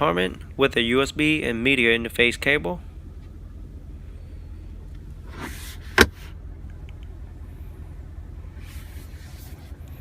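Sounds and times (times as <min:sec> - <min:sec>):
steady low hum: 0:00.0 - 0:10.0
soft rustle: 0:08.6 - 0:10.0.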